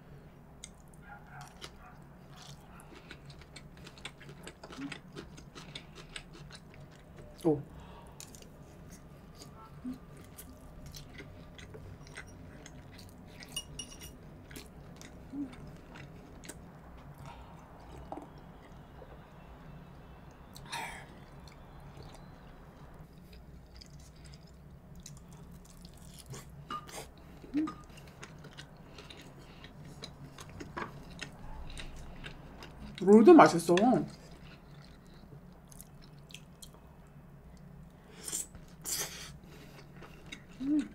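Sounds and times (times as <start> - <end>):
close chewing and mouth sounds: 0.1 - 40.9.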